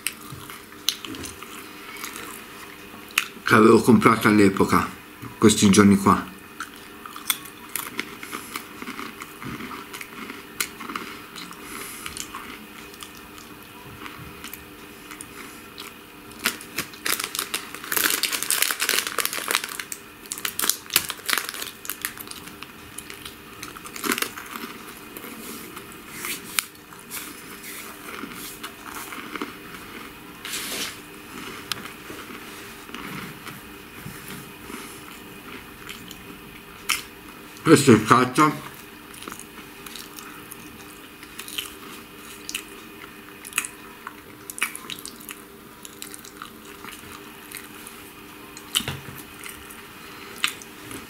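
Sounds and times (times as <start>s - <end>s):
person chewing food: 0.0s - 3.4s, 6.6s - 37.6s, 38.7s - 51.0s
food crackling: 6.4s - 33.9s, 38.7s - 51.0s.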